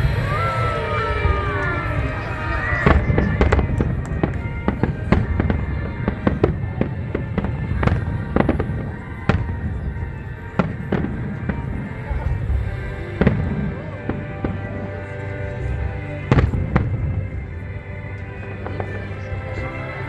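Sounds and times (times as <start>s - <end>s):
fireworks bangs and crackling: 0.0s - 12.6s
low rumbling: 0.0s - 20.0s
music playing: 0.0s - 20.0s.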